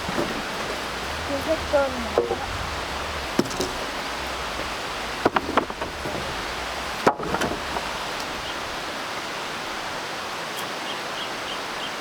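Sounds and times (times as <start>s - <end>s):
sharp knocks: 0.0s - 8.3s
water rushing: 0.0s - 12.0s.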